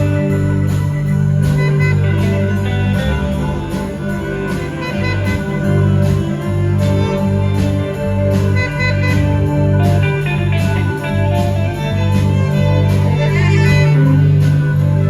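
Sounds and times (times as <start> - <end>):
bass line: 0.0 - 15.0
guitar: 0.0 - 15.0
steady drum beat: 0.0 - 15.0.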